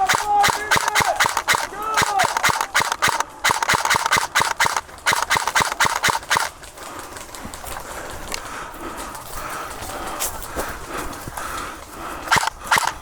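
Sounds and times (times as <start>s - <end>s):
fast sharp knocks: 0.0s - 6.5s.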